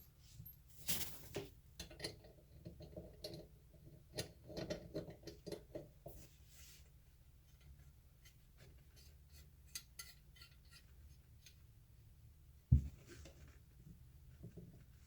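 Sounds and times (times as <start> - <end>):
heavy thump: 12.7 - 13.0.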